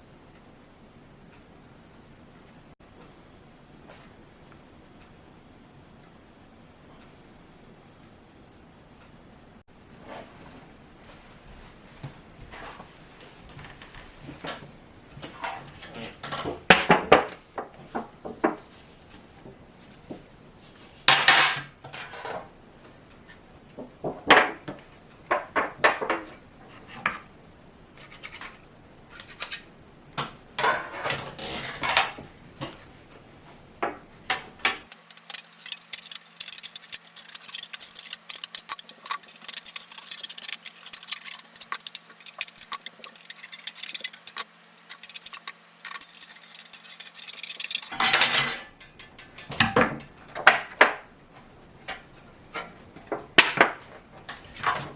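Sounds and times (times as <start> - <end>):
steel wire parts clinking and rattling: 34.9 - 50.2.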